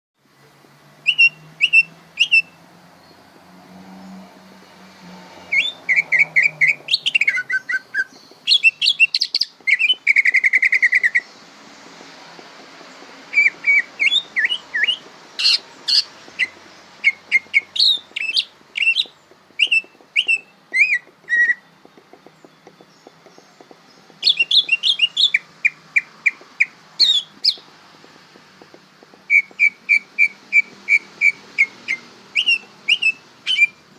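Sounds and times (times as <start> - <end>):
bird chirping and whistling: 1.0 - 2.6, 5.4 - 11.3, 13.3 - 21.8, 24.0 - 27.7, 29.2 - 33.8.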